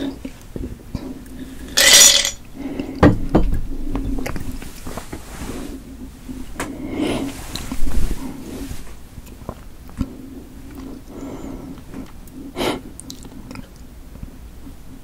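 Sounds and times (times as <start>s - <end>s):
chewing with wet clicks: 13.0s - 13.9s.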